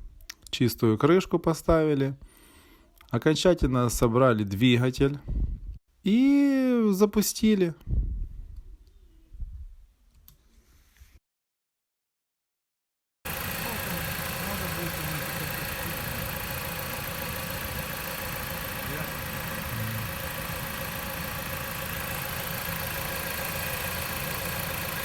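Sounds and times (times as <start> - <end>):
car engine idling: 13.3 - 25.0.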